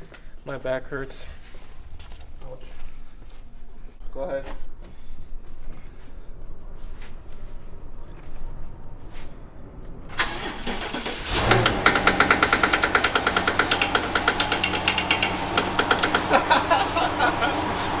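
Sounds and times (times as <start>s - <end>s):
car engine cranking and idling: 10.1s - 18.0s
rapid even ticking: 11.6s - 16.8s.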